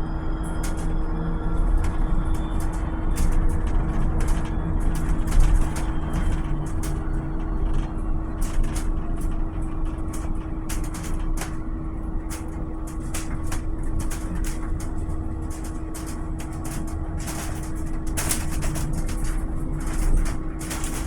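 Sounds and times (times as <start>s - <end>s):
bus road rumble and hum: 0.0s - 21.0s
short rattles and clicks: 12.3s - 21.0s.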